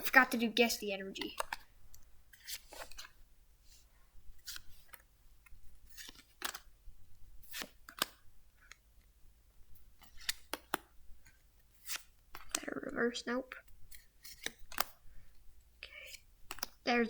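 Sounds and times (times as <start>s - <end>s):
cards swishing and snapping: 1.2s - 8.9s, 9.7s - 12.7s, 13.6s - 15.2s, 16.0s - 16.8s.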